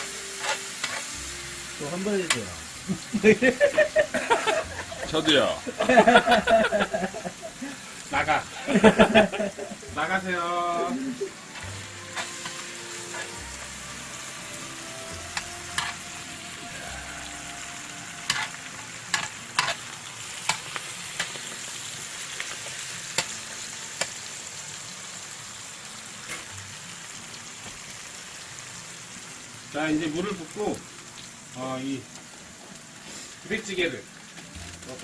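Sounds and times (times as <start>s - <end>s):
pork sizzling in a pot: 0.0s - 35.0s.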